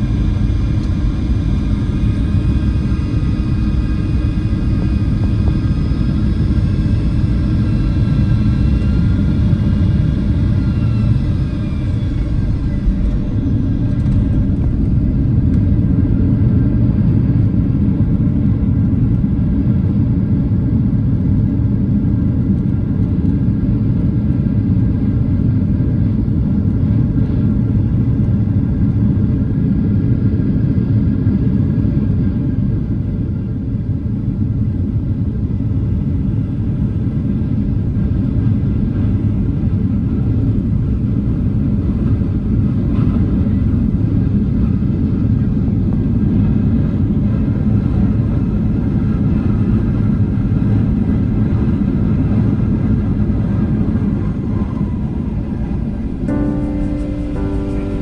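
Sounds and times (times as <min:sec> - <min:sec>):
whining jet engine tones: 0:00.0 - 0:21.4, 0:34.7 - 0:58.0
airplane cabin rumble: 0:00.0 - 0:58.0.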